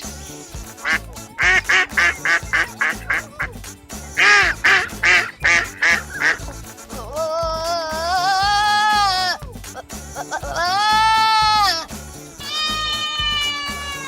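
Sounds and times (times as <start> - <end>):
backing music with beat: 0.0 - 14.0
duck quacking: 0.7 - 3.6, 4.2 - 6.6.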